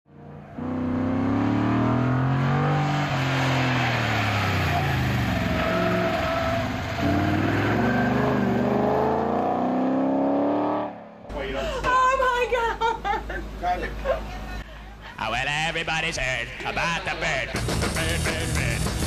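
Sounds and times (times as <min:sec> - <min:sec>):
car engine accelerating hard: 0:00.1 - 0:11.3.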